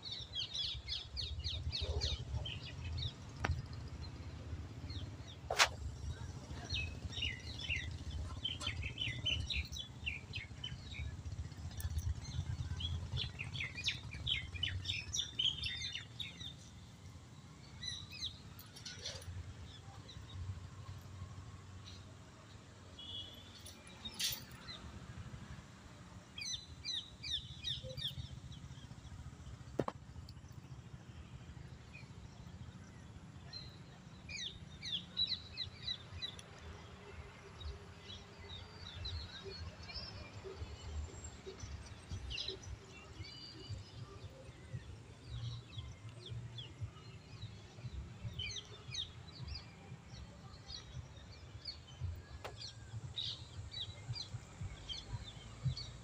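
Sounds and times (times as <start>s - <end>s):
small birds chirping: 0.0s - 21.2s
low outdoor rumble: 0.0s - 22.7s.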